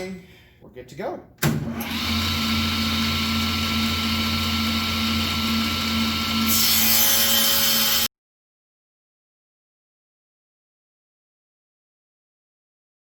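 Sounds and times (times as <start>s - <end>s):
table saw running: 1.7s - 8.1s
saw ripping through board: 6.2s - 8.1s.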